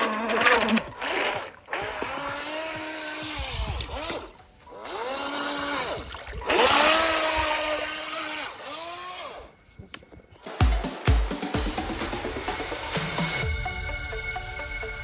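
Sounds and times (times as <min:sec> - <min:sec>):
toy boat electric motor whining: 0:00.0 - 0:09.6.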